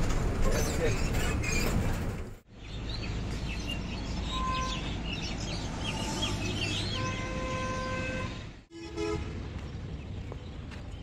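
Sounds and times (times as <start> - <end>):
birds chirping: 0.5 - 8.7.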